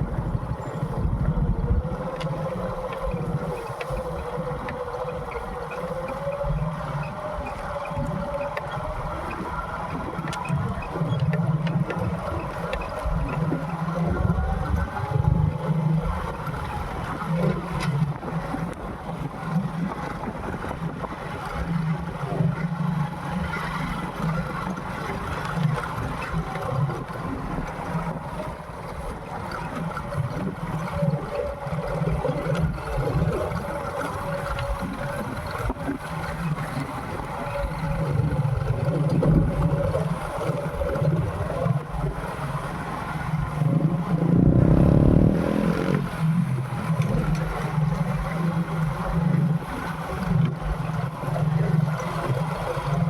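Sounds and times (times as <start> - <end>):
wind and road noise: 0.0 - 53.0
motorcycle engine running: 44.1 - 46.4.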